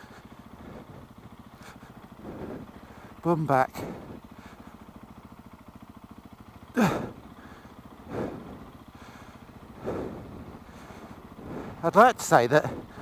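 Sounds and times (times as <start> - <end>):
motorcycle engine at low revs: 0.0 - 13.0
rider crying out: 0.0 - 13.0.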